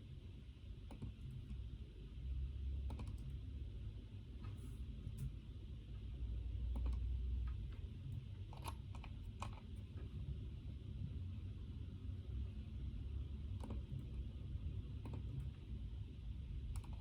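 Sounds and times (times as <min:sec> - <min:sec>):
low room hum: 0:00.0 - 0:17.0
keyboard keystrokes: 0:13.6 - 0:14.0, 0:16.7 - 0:17.0.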